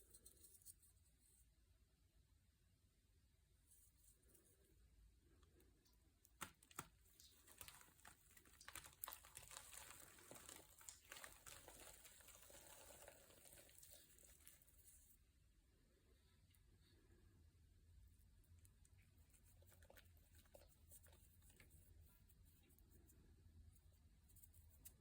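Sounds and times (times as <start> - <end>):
crinkling and rustling: 6.3 - 15.0.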